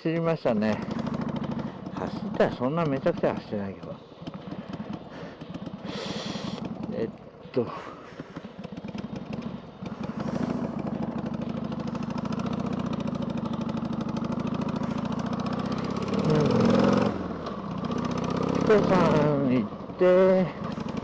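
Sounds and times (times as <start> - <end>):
motorcycle engine running: 0.2 - 21.0.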